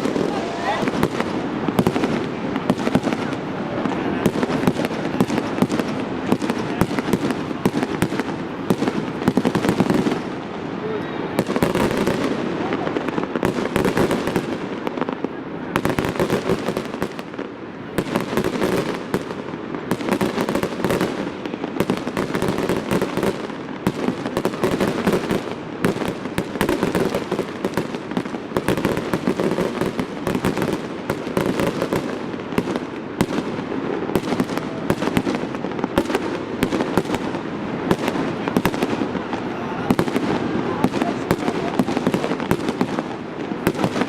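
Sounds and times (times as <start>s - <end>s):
fireworks bursts and crackling: 0.0s - 44.0s.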